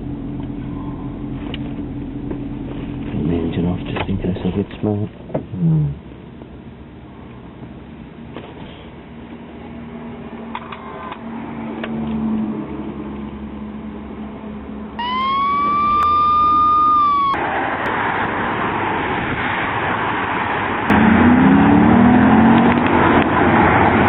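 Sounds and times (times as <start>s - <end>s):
road noise: 0.0s - 24.0s
siren steady tone: 15.0s - 17.5s
car engine revving: 20.9s - 24.0s.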